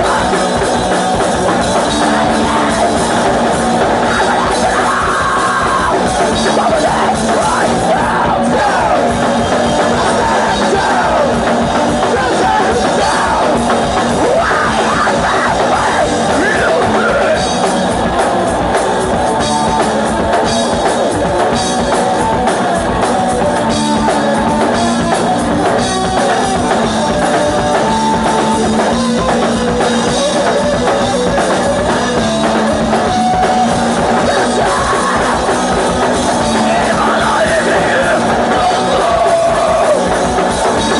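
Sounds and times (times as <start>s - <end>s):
bass: 0.0s - 40.9s
distorted guitar: 0.0s - 40.9s
drum kit: 0.0s - 40.9s
shouted vocals: 1.9s - 17.6s, 34.1s - 40.9s.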